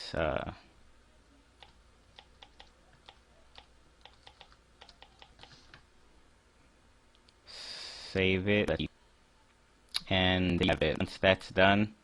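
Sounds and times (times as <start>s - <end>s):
typing on computer keyboard: 1.6s - 5.6s.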